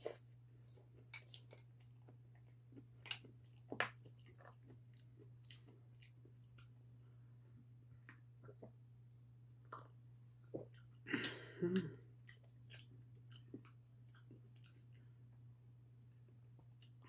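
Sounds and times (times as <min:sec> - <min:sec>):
chewing and wet mouth clicks: 0:12.2 - 0:15.1.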